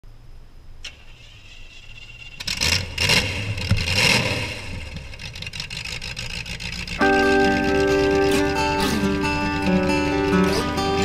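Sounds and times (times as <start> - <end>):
car engine revving hard: 2.4 - 11.0.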